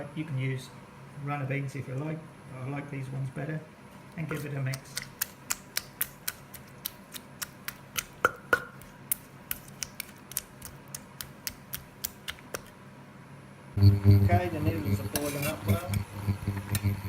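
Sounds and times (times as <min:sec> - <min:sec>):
pestle knocking in a mortar: 0:08.2 - 0:08.8.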